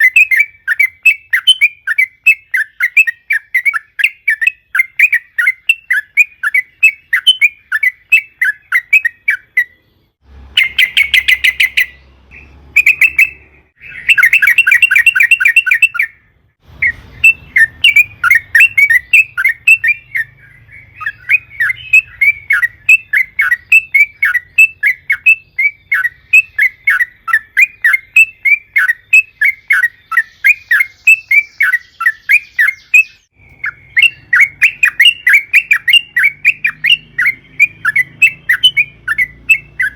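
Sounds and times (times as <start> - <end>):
bird fast trills: 0.0 - 39.9
bird chattering calls: 10.6 - 16.2, 16.8 - 39.9.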